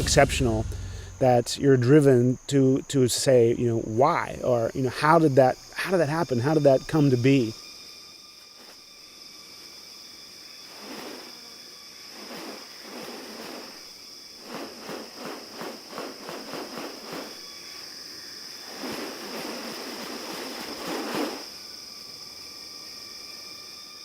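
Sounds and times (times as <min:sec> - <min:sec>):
longer noisy swell: 0:00.0 - 0:01.6
rough rapid pulses: 0:00.0 - 0:01.6
high insect drone: 0:00.0 - 0:24.0.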